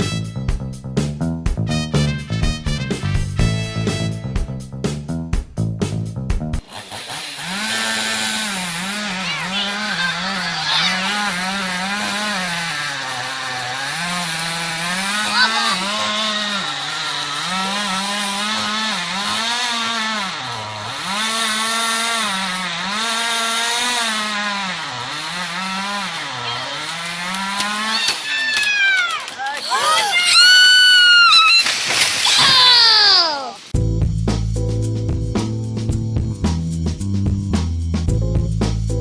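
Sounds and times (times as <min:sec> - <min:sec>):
chainsaw revving: 0:06.6 - 0:33.4.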